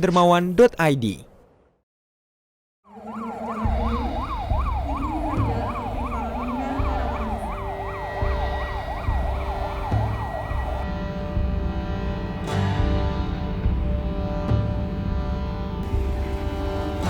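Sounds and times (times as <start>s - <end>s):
electronic siren yelping: 2.9s - 11.0s
low thumps: 3.7s - 17.0s.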